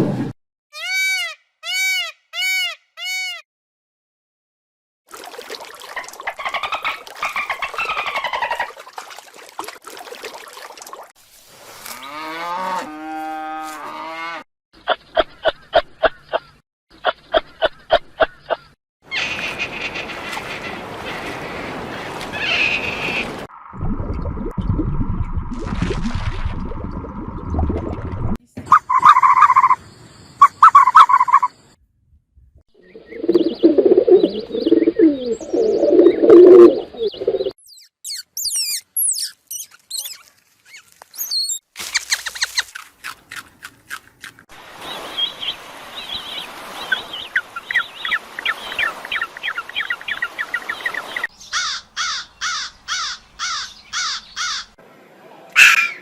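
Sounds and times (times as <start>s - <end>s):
animal calls: 28.7s - 29.8s, 30.4s - 31.6s, 55.6s - 56.0s
birds chirping and singing: 32.8s - 41.6s.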